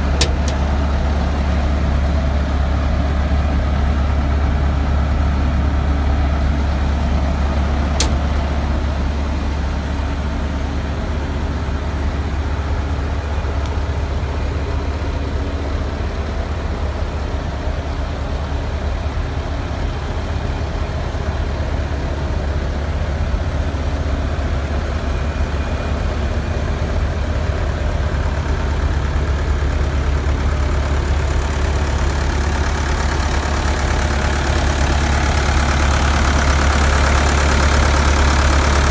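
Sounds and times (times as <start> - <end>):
diesel engine idling: 0.0 - 38.9
sharp click: 0.1 - 0.7, 8.0 - 8.6.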